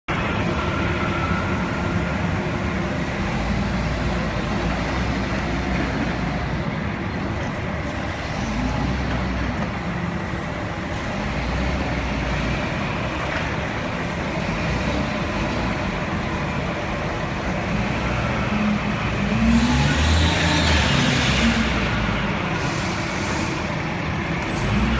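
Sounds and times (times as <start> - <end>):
forklift engine revving: 17.5 - 24.9.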